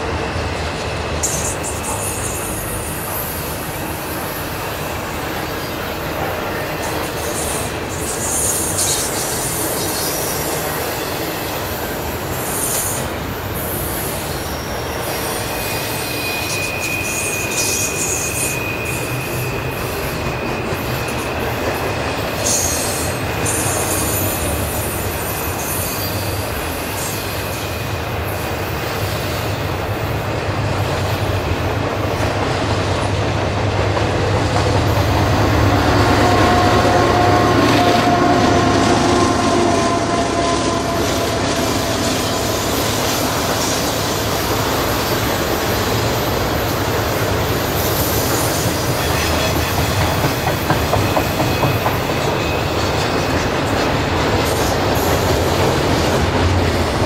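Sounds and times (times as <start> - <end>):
diesel locomotive engine hum: 0.0 - 57.0
train wheel and rail noise: 0.0 - 57.0
thin wheel squeal: 6.6 - 11.1, 14.3 - 21.7.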